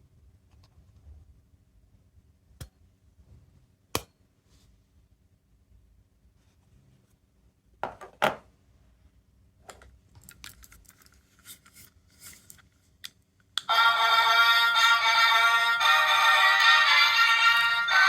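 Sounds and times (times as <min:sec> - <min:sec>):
toy playing synthesized tune: 0:13.7 - 0:18.0.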